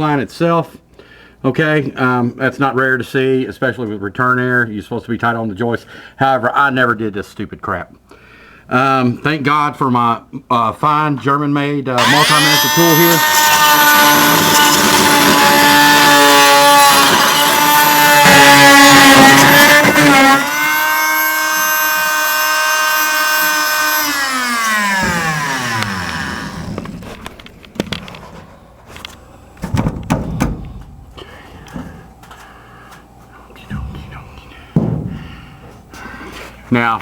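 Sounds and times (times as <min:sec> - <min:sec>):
oscillating tool buzzing: 0:12.0 - 0:27.2
tool winding down: 0:12.0 - 0:27.2.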